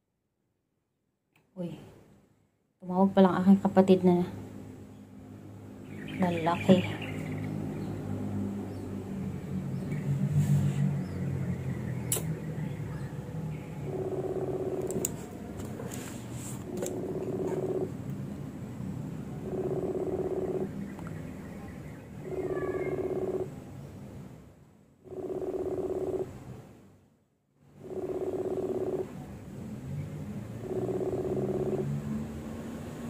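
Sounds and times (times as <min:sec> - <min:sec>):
telephone ringing tone: 0:13.9 - 0:15.3, 0:19.4 - 0:20.7, 0:25.1 - 0:26.3, 0:27.8 - 0:29.1.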